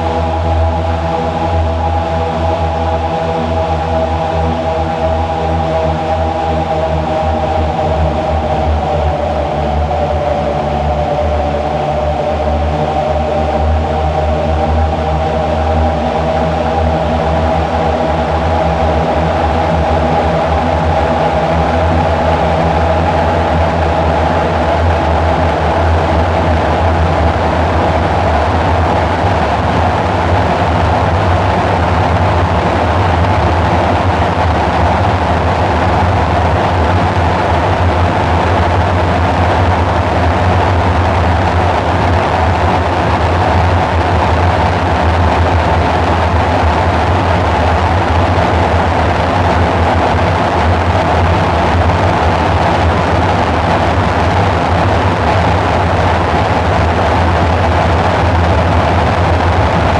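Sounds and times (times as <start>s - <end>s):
dark synthesizer drone: 0.0s - 59.9s.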